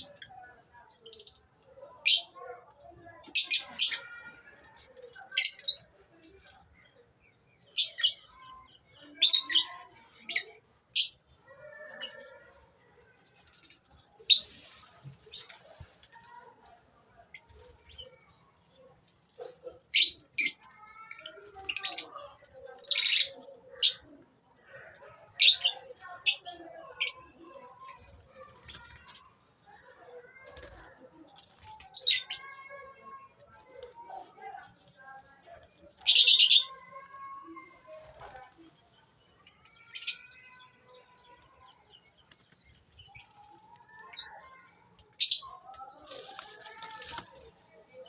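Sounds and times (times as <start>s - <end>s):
lovebirds chattering: 41.2s - 48.0s.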